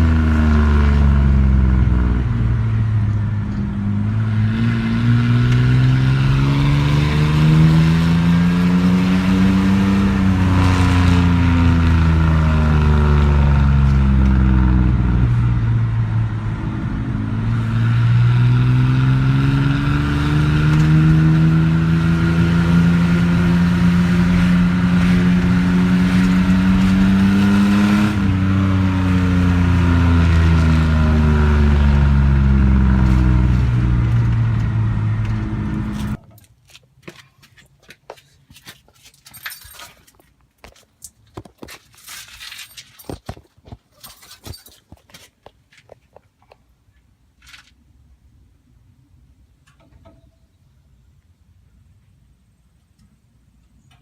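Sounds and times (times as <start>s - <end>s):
loud unmuffled truck exhaust revving: 0.0s - 36.2s.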